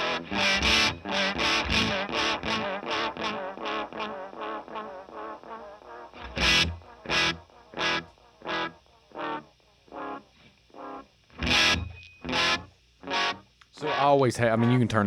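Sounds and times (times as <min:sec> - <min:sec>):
electric guitar note echoing: 0:00.0 - 0:10.2, 0:10.8 - 0:14.8.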